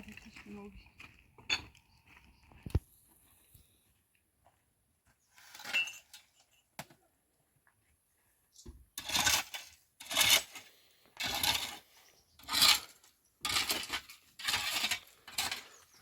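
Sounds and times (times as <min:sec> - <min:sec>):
rasping scrapes: 0:09.0 - 0:16.0.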